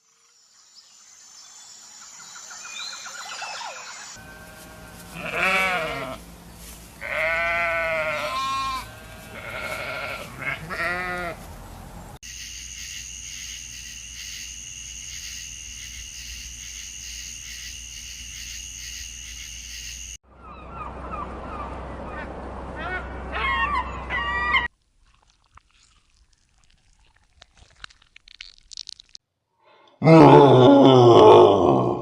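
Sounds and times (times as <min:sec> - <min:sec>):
goats or sheep bleating: 0:04.3 - 0:06.2, 0:07.0 - 0:11.4.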